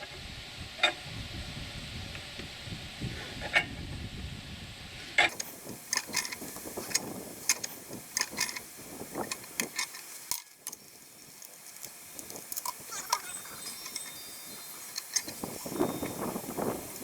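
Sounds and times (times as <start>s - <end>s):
steady hiss: 4.4s - 17.0s
metallic clicks and clanks: 5.3s - 17.0s.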